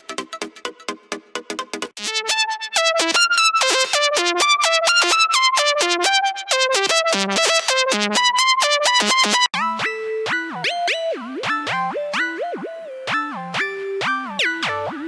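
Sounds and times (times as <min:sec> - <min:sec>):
plucked synth notes: 0:09.6 - 0:15.0.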